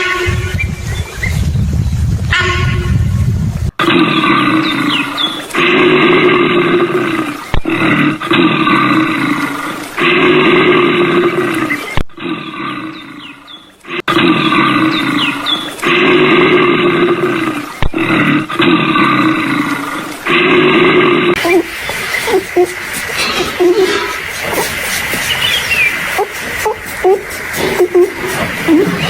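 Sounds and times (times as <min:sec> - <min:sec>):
animal roaring: 0:15.8 - 0:29.0.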